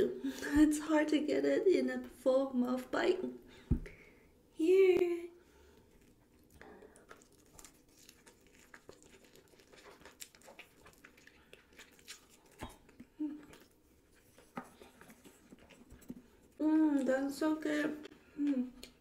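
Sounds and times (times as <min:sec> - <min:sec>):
chewing with wet mouth clicks: 0:05.9 - 0:17.2, 0:18.0 - 0:19.0.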